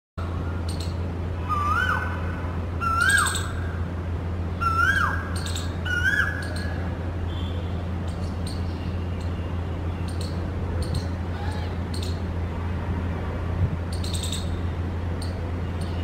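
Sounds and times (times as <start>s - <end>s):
steady low hum: 0.2s - 16.0s
bird whistled calls: 1.5s - 2.1s, 2.8s - 3.7s, 4.6s - 6.7s.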